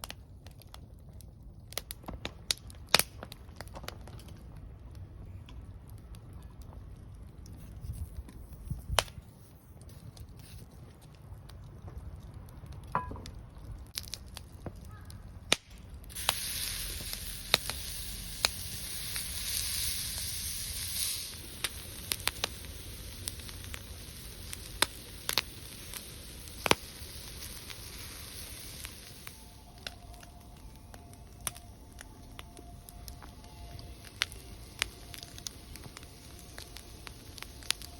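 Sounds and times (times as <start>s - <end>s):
sharp pops from fire: 0.0s - 37.9s
wood fire crackling: 0.0s - 37.9s
steady hiss: 15.5s - 37.9s.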